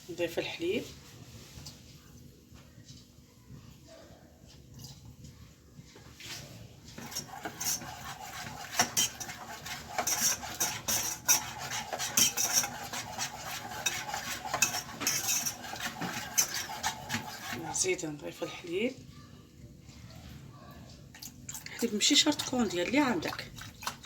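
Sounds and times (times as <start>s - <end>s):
utensil scraping and clinking pan: 6.9s - 18.6s.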